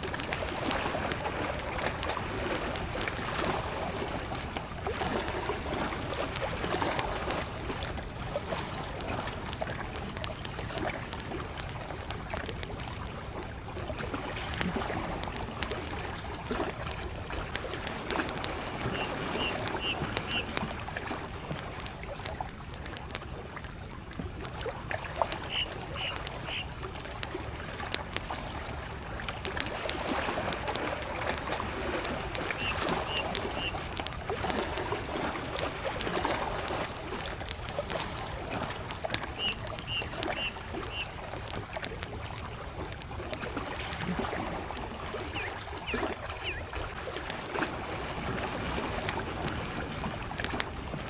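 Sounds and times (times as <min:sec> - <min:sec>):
campfire crackling and popping: 0:00.0 - 0:51.0
lake waves lapping: 0:00.0 - 0:51.0
bird chirping: 0:18.9 - 0:20.5, 0:25.4 - 0:26.7, 0:32.6 - 0:33.8, 0:39.4 - 0:41.1, 0:45.3 - 0:46.7.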